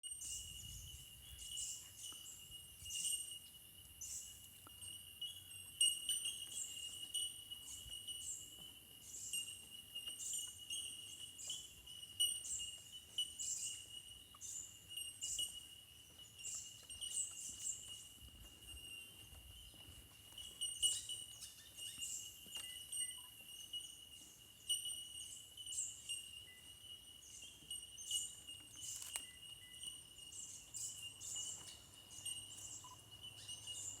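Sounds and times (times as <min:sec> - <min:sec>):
high-pitched insect-like whine: 0:00.0 - 0:34.0
small birds chirping: 0:00.0 - 0:34.0.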